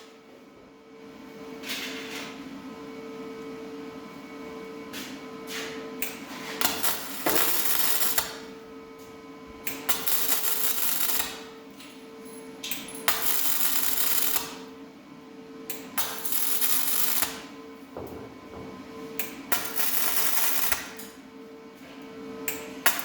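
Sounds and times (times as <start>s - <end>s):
welder crackling: 6.6s - 8.6s, 9.6s - 11.5s, 13.1s - 14.6s, 16.0s - 17.5s, 19.2s - 21.1s.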